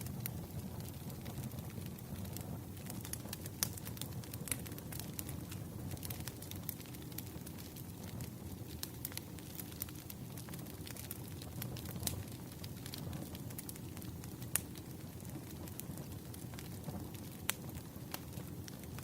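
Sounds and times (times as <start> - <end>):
fire crackling and popping: 0.0 - 19.0
fire low rumble: 0.0 - 19.0.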